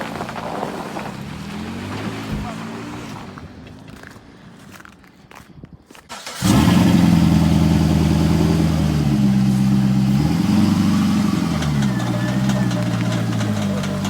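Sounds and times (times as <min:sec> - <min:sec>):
vehicle engine starting and running: 0:06.1 - 0:14.0.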